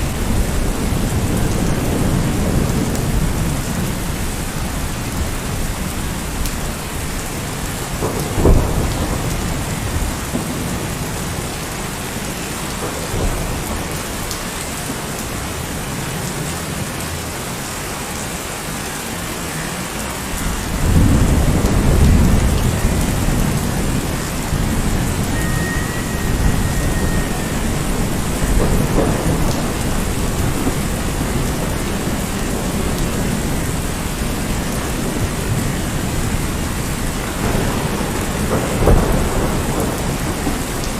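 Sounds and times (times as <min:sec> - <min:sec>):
low thunder rumble: 0:00.0 - 0:17.9, 0:20.2 - 0:40.9
steady rain falling: 0:00.0 - 0:40.9
thunder crack: 0:07.8 - 0:15.0, 0:20.4 - 0:40.9.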